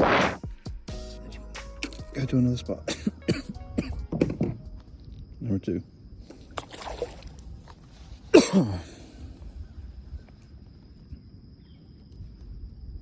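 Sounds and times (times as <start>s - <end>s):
man coughing: 2.9s - 4.0s, 8.3s - 9.2s.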